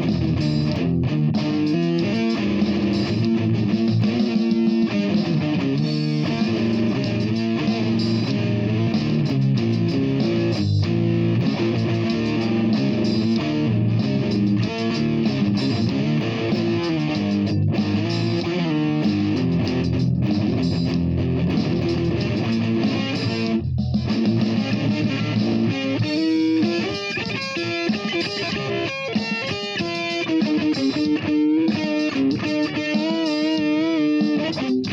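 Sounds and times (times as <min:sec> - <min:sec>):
electric guitar playing: 0:00.0 - 0:34.9.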